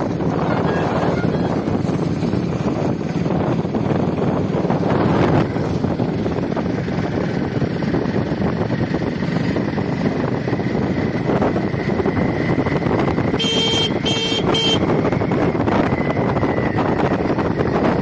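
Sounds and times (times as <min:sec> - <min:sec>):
motorcycle engine: 0:00.0 - 0:18.0
wind on microphone: 0:00.0 - 0:18.0
vehicle horn beeps: 0:00.4 - 0:01.6, 0:13.4 - 0:14.9.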